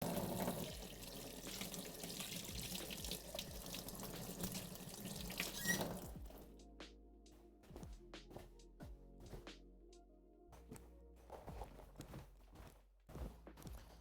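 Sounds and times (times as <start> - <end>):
tap water running into sink: 0.0 - 6.2.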